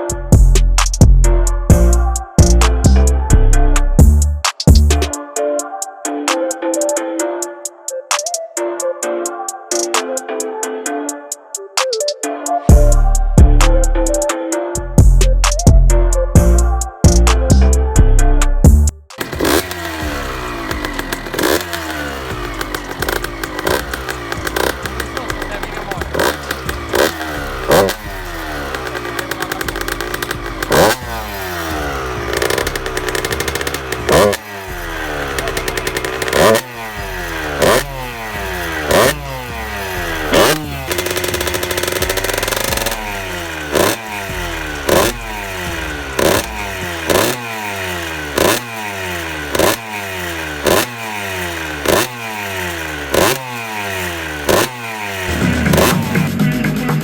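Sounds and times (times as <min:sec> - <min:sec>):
two-stroke motorcycle engine revving: 0:00.0 - 0:05.2, 0:12.7 - 0:14.2, 0:18.6 - 0:57.0.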